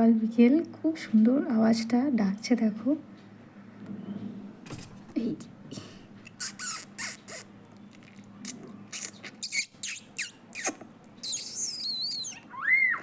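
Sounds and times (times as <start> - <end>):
person making squeaky mouth sounds: 6.3 - 13.0
bird chirping: 8.9 - 13.0.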